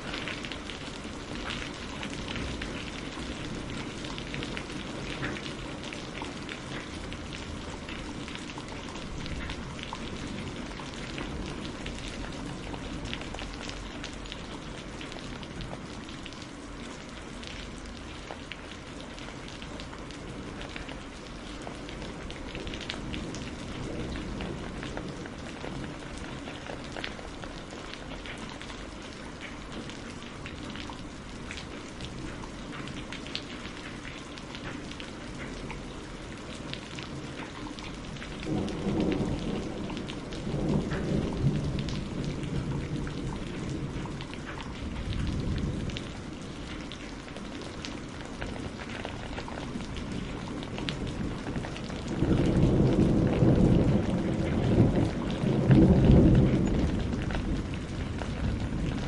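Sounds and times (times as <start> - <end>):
steady rain: 0.0 - 59.0
thunder rumbles: 0.0 - 59.0.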